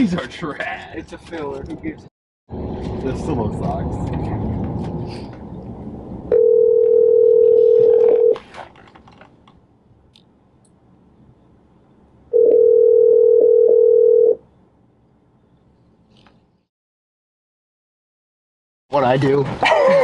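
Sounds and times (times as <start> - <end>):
telephone ringback tone: 6.3 - 8.4, 12.3 - 14.4.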